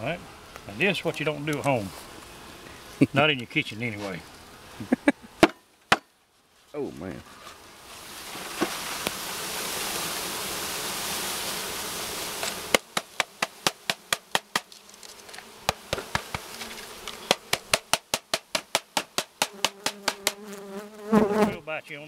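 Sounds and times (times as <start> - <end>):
honey bees buzzing: 0.0 - 5.5, 7.2 - 22.0
sharp knocks: 12.7 - 14.7, 15.7 - 16.5, 17.3 - 20.4.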